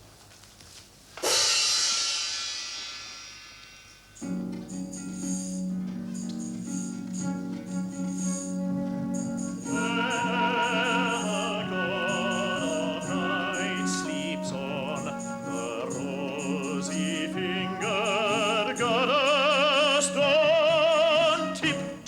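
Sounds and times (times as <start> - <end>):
high voice singing with vibrato: 9.6 - 22.0.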